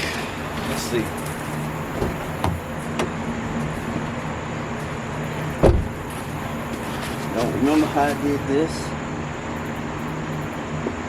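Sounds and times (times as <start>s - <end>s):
steady low hum: 0.0s - 11.0s
thump: 5.6s - 5.9s.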